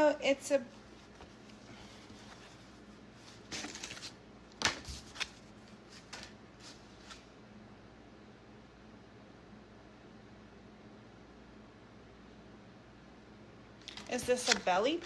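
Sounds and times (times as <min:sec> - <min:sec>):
packaging rustling and crinkling: 0:01.0 - 0:07.2, 0:13.8 - 0:15.0.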